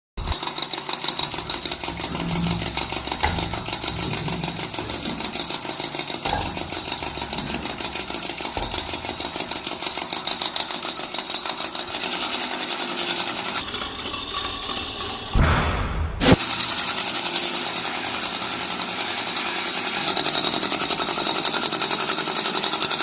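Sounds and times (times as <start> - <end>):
small motor mechanism clattering: 0.2 - 15.4, 16.2 - 23.0.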